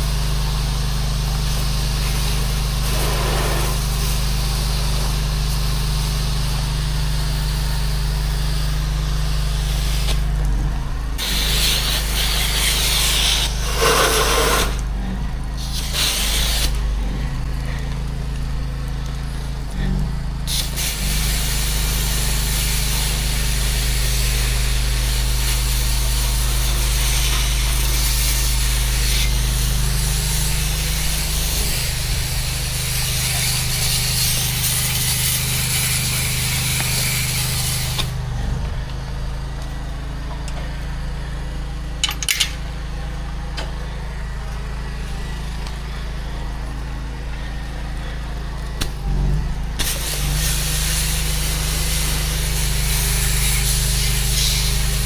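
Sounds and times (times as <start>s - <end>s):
pressure washer engine running: 0.0s - 55.0s
water spray hissing: 1.5s - 6.6s, 9.4s - 10.4s, 11.2s - 14.9s, 15.6s - 17.8s, 20.5s - 38.1s, 49.8s - 55.0s.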